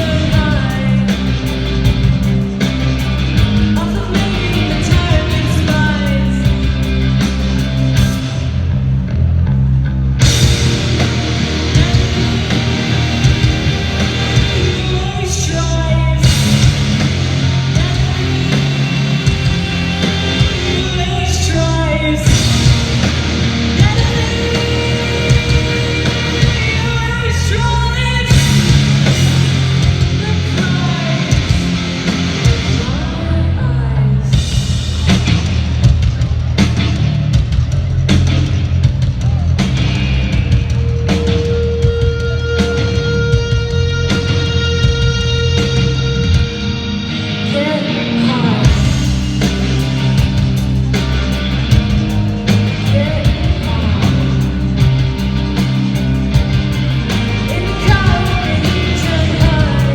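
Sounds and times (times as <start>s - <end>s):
person singing: 0.0s - 1.6s, 3.7s - 6.7s, 23.5s - 31.6s, 47.4s - 49.2s, 52.5s - 54.8s, 57.1s - 59.9s
distorted guitars: 0.0s - 59.9s
drums: 0.0s - 59.9s.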